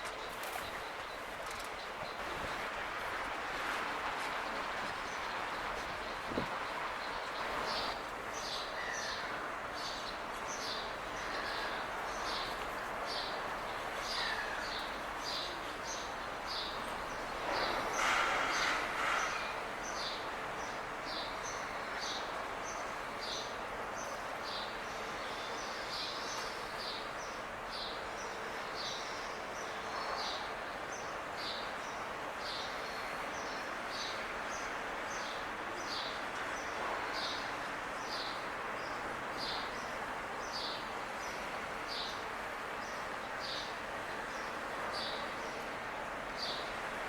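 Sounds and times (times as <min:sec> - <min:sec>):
rushing background noise: 0:00.0 - 0:47.0.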